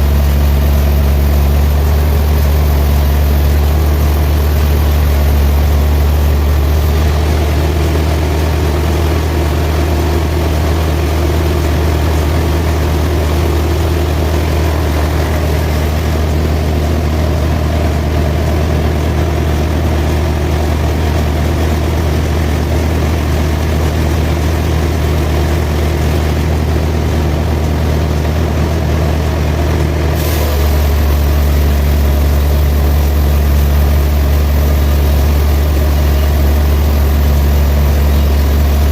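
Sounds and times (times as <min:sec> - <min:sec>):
sawmill machinery humming: 0:00.0 - 0:38.9.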